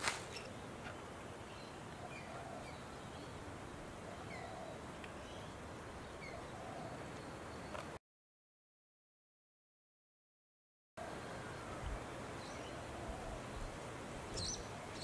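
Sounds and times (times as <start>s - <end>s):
steady background hiss: 0.0s - 8.0s, 11.0s - 15.0s.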